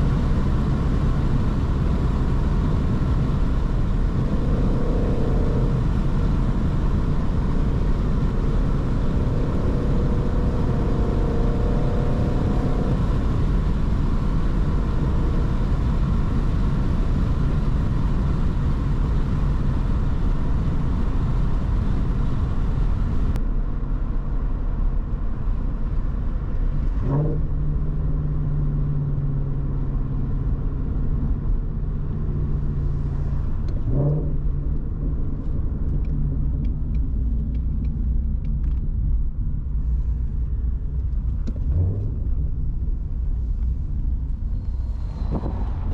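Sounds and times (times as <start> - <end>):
car engine revving: 0.0 - 23.4
tyre and road noise: 0.0 - 45.9.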